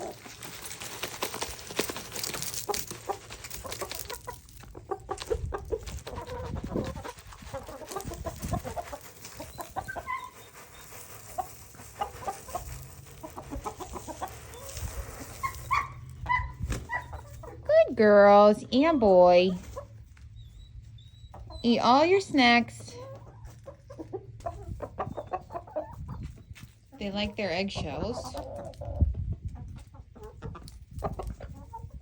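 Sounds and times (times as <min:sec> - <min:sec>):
pecking clicks and rustles: 0:00.0 - 0:15.8
chickens clucking: 0:00.0 - 0:32.0.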